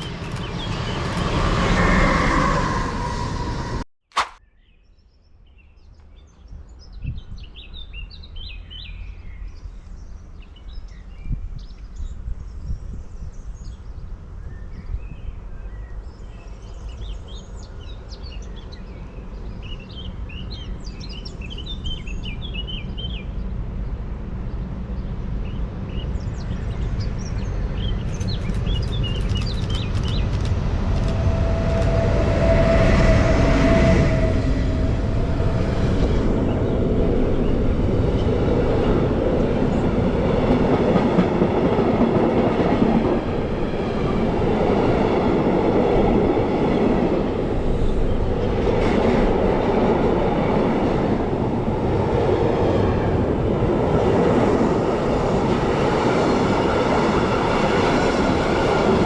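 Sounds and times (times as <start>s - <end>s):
birds chirping: 0.0s - 1.5s, 26.2s - 31.9s
train passing on rails: 0.0s - 3.8s, 8.2s - 59.0s.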